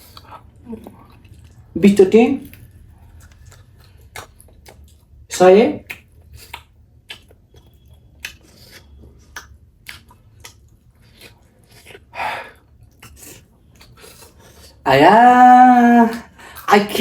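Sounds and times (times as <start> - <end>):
wet chewing and mouth clicks: 0.0 - 1.8, 2.4 - 14.8
breathy sound: 16.2 - 16.7.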